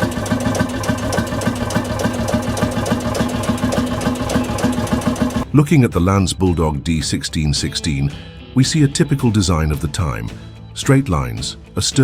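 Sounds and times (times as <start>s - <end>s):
diesel engine knocking: 0.0s - 5.4s.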